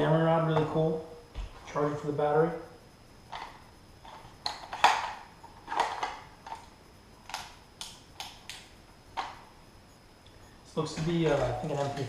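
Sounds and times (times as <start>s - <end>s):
clicks and knocks of plastic parts: 10.9s - 12.0s.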